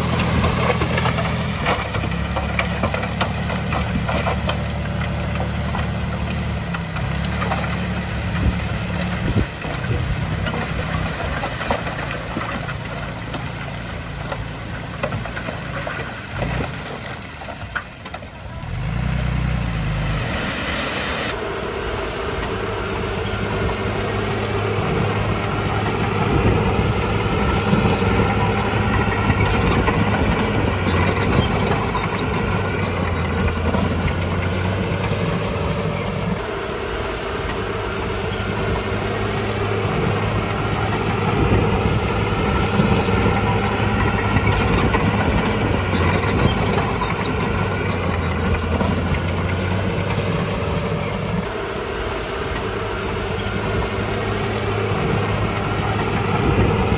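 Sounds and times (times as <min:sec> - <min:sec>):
bulldozer diesel engine: 0:00.0 - 0:56.9.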